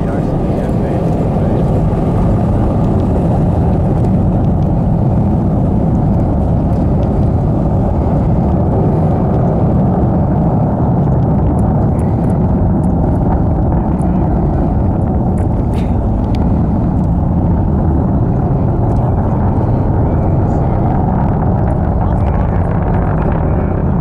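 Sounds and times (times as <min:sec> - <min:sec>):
rocket engines rumbling: 0:00.0 - 0:24.0.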